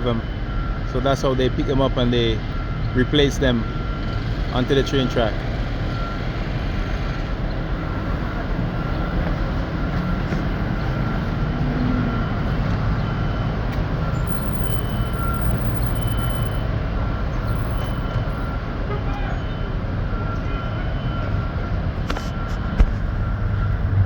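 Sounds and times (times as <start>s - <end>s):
diesel machinery rumbling: 0.0s - 24.0s
faint high beep: 11.0s - 21.6s.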